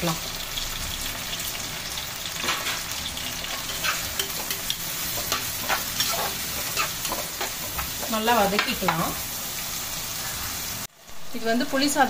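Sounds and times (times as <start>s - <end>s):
onions and tomatoes sizzling: 0.0s - 12.0s
spoon scraping a pan: 2.4s - 9.2s.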